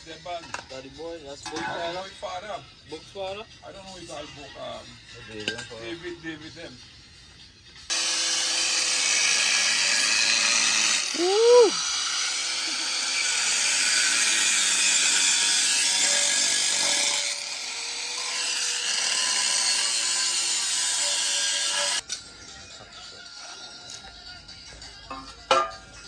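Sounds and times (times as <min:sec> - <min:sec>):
power tool cutting metal pipe: 0:07.9 - 0:22.0.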